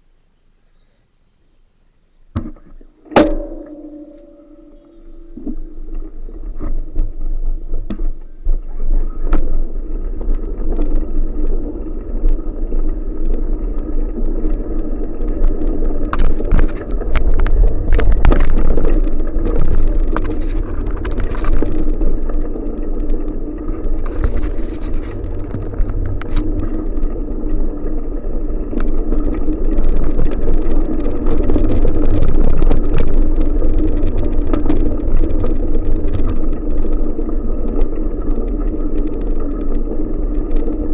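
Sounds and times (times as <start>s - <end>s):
bicycle tyres and frame rattling: 2.8s - 40.9s
wind rumbling on microphone: 3.2s - 40.9s.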